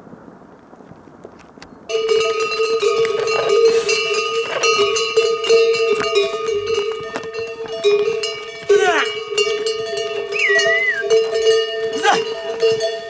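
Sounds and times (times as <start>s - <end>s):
faint wind: 0.0s - 13.0s
clanking metal bells: 1.9s - 13.0s.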